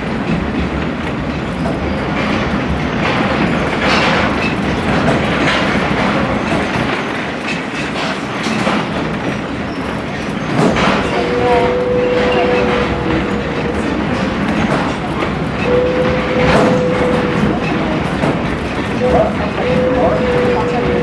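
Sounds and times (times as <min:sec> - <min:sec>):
train rumble: 0:00.0 - 0:21.0
wheel clicks over rail joints: 0:00.2 - 0:11.4.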